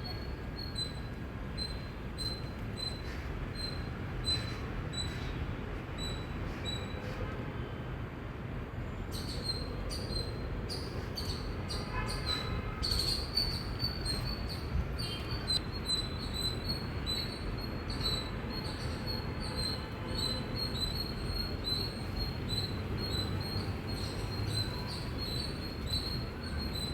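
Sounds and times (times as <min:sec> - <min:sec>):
squirrel chirping: 0:00.0 - 0:03.0, 0:09.2 - 0:11.9, 0:12.8 - 0:26.9.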